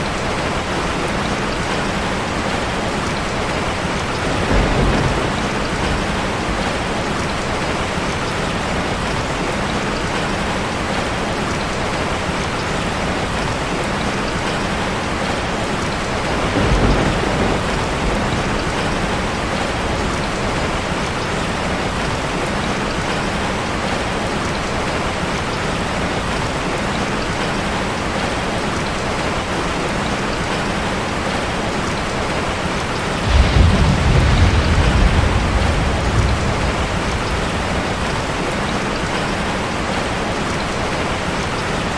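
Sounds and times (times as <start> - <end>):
rain drumming on a metal roof: 0.0 - 41.9
low rumble: 33.2 - 38.8.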